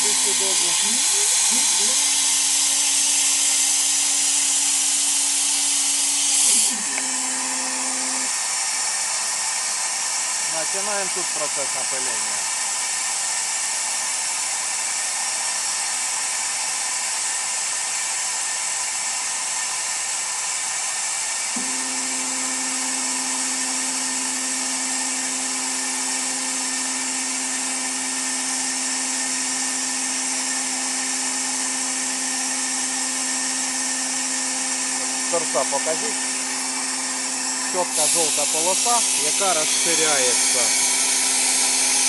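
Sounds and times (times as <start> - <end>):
spray gun hissing: 0.0 - 6.9, 22.1 - 41.1.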